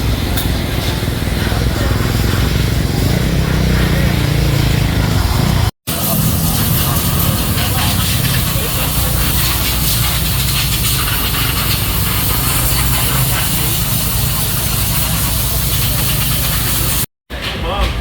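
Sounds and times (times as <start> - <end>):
low engine rumble: 0.0 - 18.0
loud hiss: 5.9 - 17.1.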